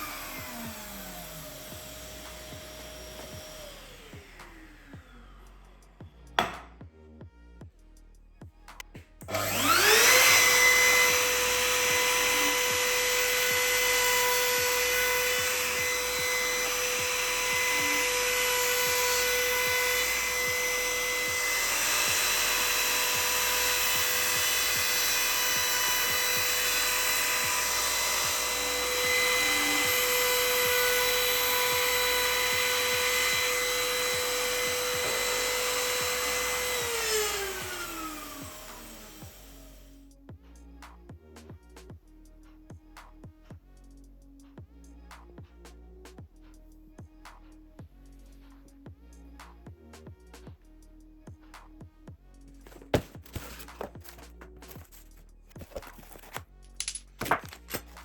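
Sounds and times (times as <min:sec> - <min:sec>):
power tool motor whining: 0:00.0 - 0:06.8, 0:09.2 - 0:40.0, 0:52.7 - 0:58.0.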